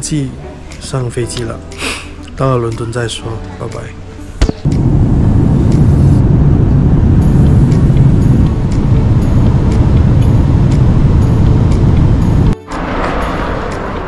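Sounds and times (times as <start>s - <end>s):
jet airliner cabin rumble: 4.6s - 14.0s.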